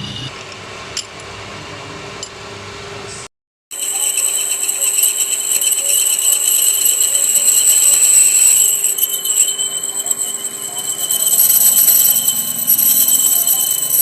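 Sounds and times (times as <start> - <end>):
harsh metallic scraping: 0.0 - 0.3, 3.7 - 14.0
rapid fine rattle: 3.7 - 14.0
steady high whine: 3.8 - 14.0.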